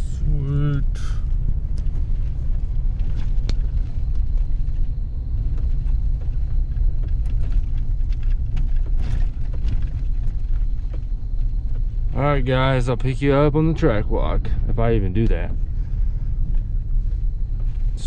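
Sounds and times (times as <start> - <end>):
vehicle driving slowly: 0.0 - 18.0
small knocks and rattles: 1.7 - 12.2.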